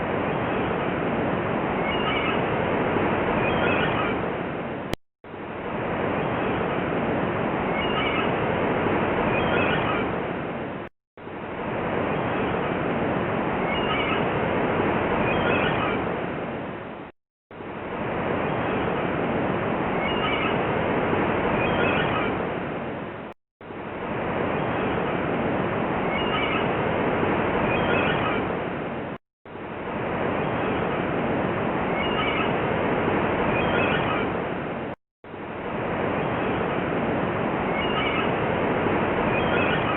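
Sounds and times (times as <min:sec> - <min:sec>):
seagull calls: 0:01.8 - 0:02.4, 0:03.4 - 0:04.2, 0:07.7 - 0:08.4, 0:09.3 - 0:10.1, 0:13.6 - 0:14.3, 0:15.3 - 0:16.0, 0:20.0 - 0:20.6, 0:21.6 - 0:22.4, 0:26.0 - 0:26.7, 0:27.7 - 0:28.5, 0:31.9 - 0:32.6, 0:33.6 - 0:34.4, 0:37.7 - 0:38.4, 0:39.3 - 0:39.9.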